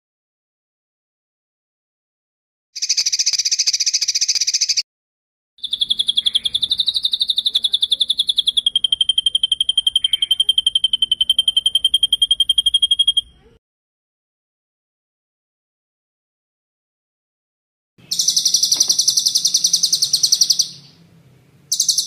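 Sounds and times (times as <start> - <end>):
songbird trilling: 2.8 - 4.8, 5.6 - 13.5, 18.0 - 21.1, 21.7 - 22.0.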